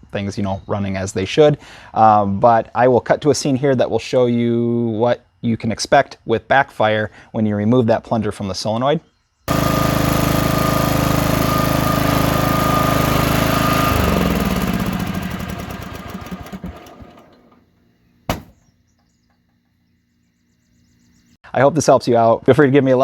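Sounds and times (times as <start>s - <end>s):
lawn tractor engine running: 9.5s - 17.7s
engine backfire pop: 18.3s - 18.8s.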